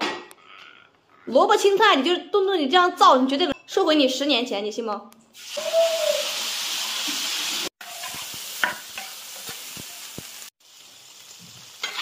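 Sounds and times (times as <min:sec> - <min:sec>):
meat sizzling in hot oil: 0:05.4 - 0:12.0
spatula scraping and tapping wok: 0:07.1 - 0:10.5, 0:11.4 - 0:12.0.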